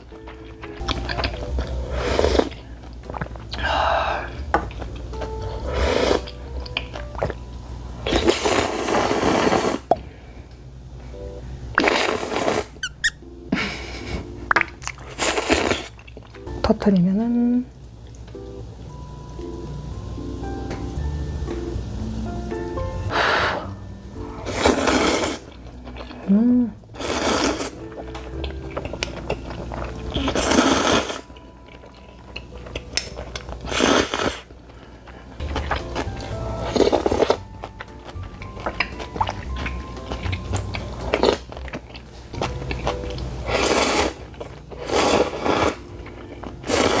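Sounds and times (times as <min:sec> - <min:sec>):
chewing: 0:00.0 - 0:07.4, 0:13.6 - 0:16.4, 0:24.4 - 0:47.0
noodles slurping: 0:00.2 - 0:07.4, 0:08.0 - 0:10.2, 0:11.7 - 0:13.0, 0:14.6 - 0:16.3, 0:23.1 - 0:47.0
person slurping noodles: 0:01.6 - 0:04.4, 0:05.6 - 0:06.4, 0:08.1 - 0:10.0, 0:11.8 - 0:12.8, 0:15.0 - 0:16.0, 0:24.4 - 0:25.6, 0:27.0 - 0:27.8, 0:29.9 - 0:31.3, 0:33.6 - 0:34.5, 0:43.4 - 0:45.9, 0:46.6 - 0:47.0.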